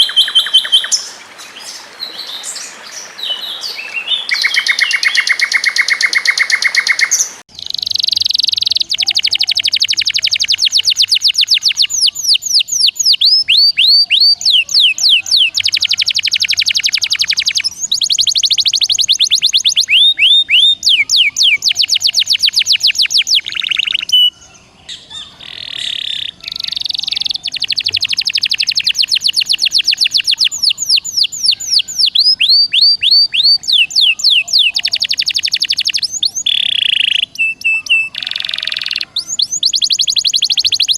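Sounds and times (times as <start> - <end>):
songbird trilling: 0.0 - 40.9.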